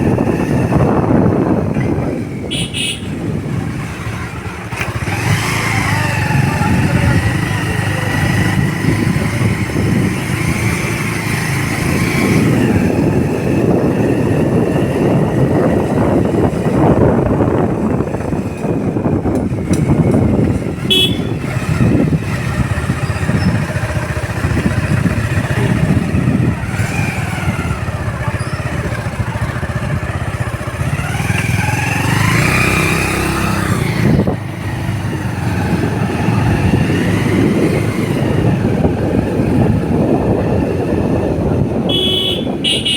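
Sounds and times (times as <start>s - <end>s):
motorcycle engine running: 0.0s - 42.9s
road and wind noise: 0.0s - 42.9s
horn toot: 2.4s - 3.4s, 20.8s - 21.7s, 41.8s - 42.9s
traffic horns: 2.4s - 4.1s, 20.8s - 21.8s, 41.8s - 42.9s.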